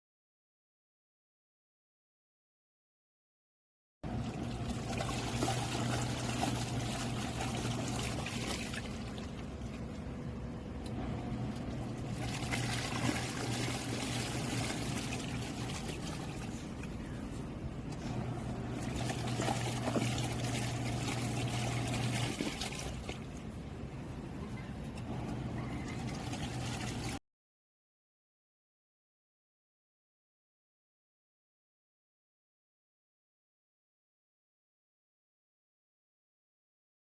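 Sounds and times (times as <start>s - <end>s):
washing machine motor humming: 4.0s - 27.2s
water sloshing and trickling: 4.1s - 27.2s.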